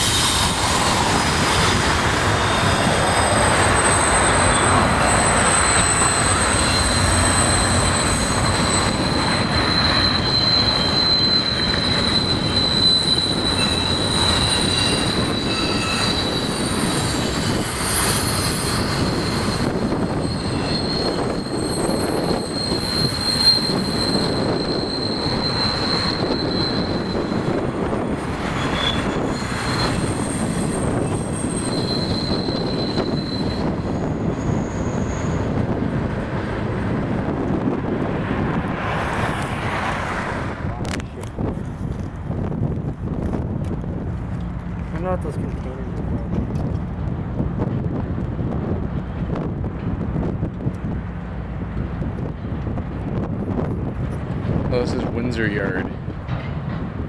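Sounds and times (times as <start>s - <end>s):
high-pitched wheel squeal: 0.0s - 35.7s
train wheels rumbling on rails: 0.0s - 57.0s.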